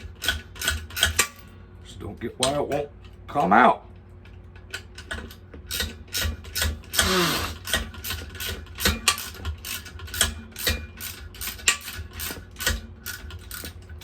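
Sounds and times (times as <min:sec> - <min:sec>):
ratchet wrench clicking: 0:00.2 - 0:01.3, 0:04.7 - 0:13.8.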